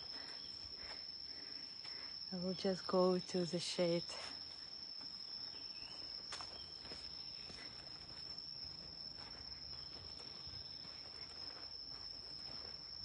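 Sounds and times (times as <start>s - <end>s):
insects buzzing: 0.0s - 13.0s
faint footsteps: 5.9s - 13.0s.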